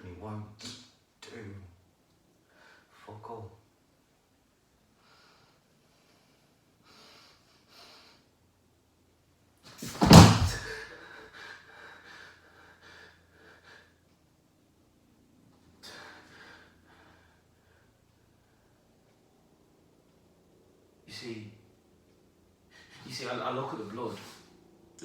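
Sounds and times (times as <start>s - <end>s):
loud bang: 9.8s - 10.8s.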